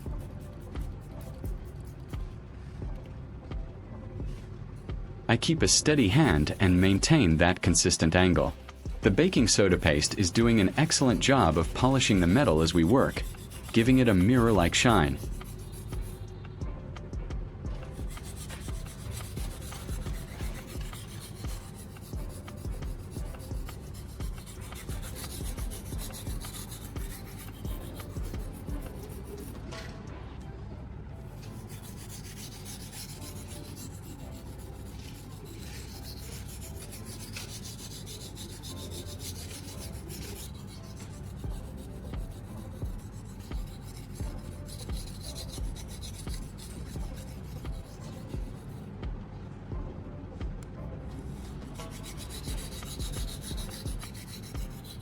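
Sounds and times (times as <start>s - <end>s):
knife scraping on whetstone: 5.8s - 16.2s, 17.9s - 29.6s, 31.3s - 48.8s, 51.1s - 55.0s.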